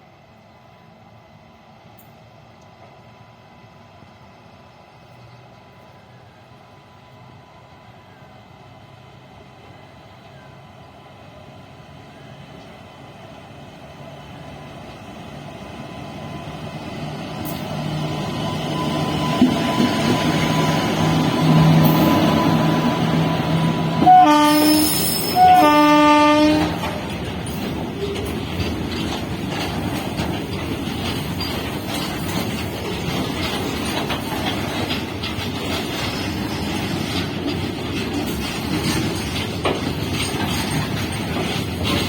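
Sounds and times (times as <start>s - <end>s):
freight train rumbling by: 0.0s - 42.0s
locomotive horn blasts: 23.9s - 27.1s.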